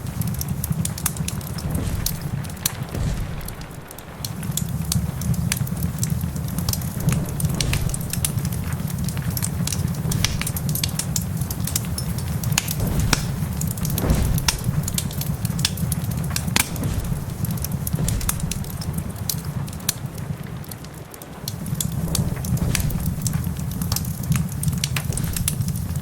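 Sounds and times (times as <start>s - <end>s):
rain hissing: 0.0s - 26.0s
wood fire crackling: 0.0s - 26.0s.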